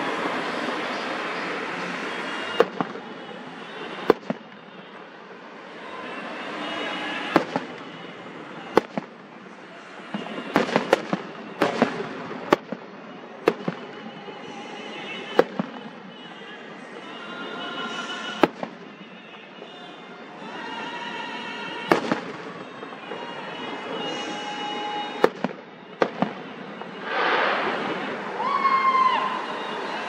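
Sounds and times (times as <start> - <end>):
fireworks bangs: 0.0 - 30.0
fireworks crackling hiss: 21.9 - 30.0.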